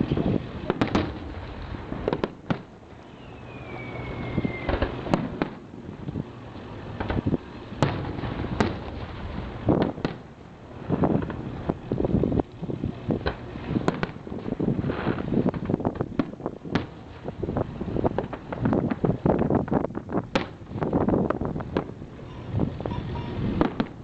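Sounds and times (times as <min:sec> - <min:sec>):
fireworks bangs: 0:00.0 - 0:06.2, 0:06.9 - 0:12.0, 0:13.0 - 0:24.0
firework whistle falling in pitch: 0:03.0 - 0:04.9.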